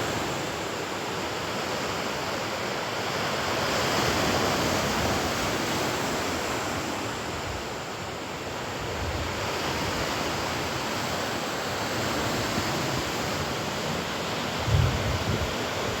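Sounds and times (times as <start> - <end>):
wind buffeting microphone: 14.6 - 16.0.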